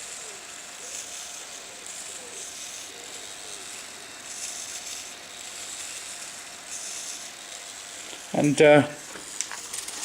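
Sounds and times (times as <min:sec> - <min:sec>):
servos whirring: 0:00.0 - 0:10.0
steady hiss: 0:00.0 - 0:10.0.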